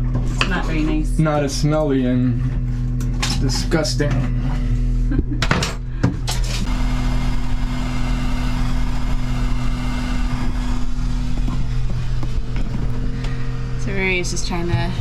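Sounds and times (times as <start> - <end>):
steady low hum: 0.0 - 15.0
hot-air blower rushing: 6.0 - 15.0.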